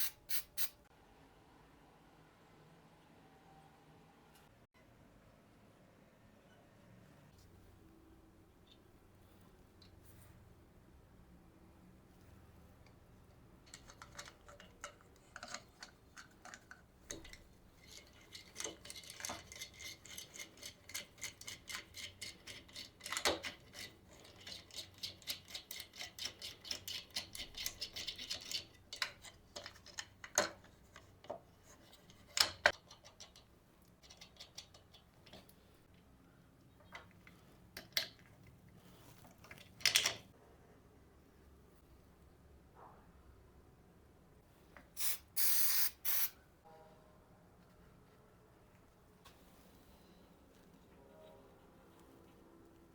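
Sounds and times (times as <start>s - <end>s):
tools clicking and tapping: 13.6s - 36.0s, 39.4s - 40.3s.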